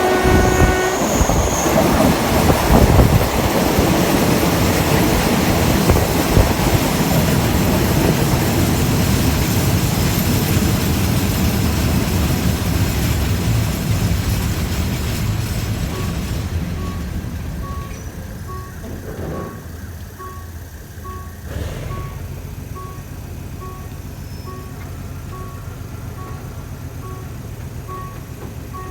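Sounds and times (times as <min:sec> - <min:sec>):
train rumbling along track: 0:00.0 - 0:28.9
short beeps: 0:16.8 - 0:18.9, 0:20.2 - 0:28.9.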